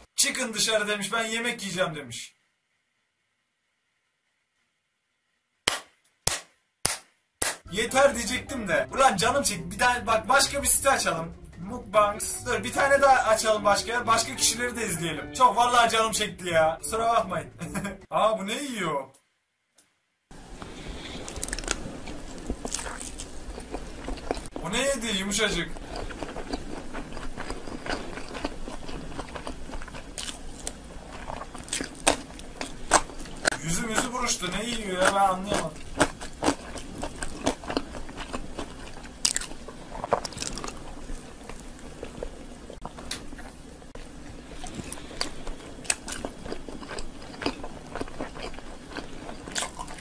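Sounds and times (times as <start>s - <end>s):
chewing and mouth-smacking: 21.0s - 24.6s, 25.6s - 50.0s
crunching bites: 21.0s - 24.6s, 25.5s - 43.5s, 44.6s - 50.0s.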